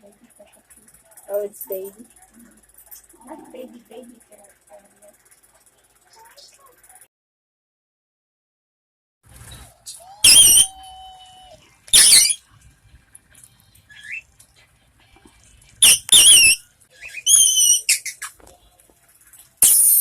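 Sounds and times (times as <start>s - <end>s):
parakeet screaming: 10.0s - 12.4s, 15.8s - 18.3s.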